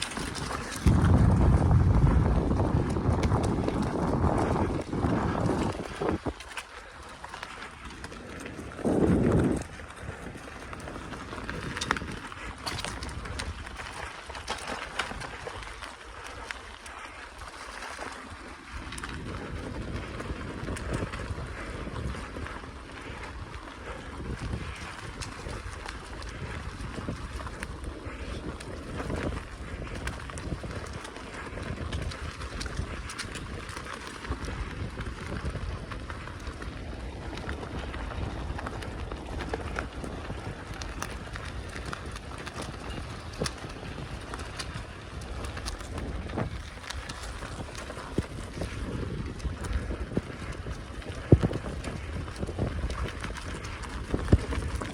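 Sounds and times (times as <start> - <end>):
bicycle rumbling on track: 0.0 - 54.9
wind buffeting microphone: 0.0 - 54.9
small clicks and rattles: 2.8 - 22.5.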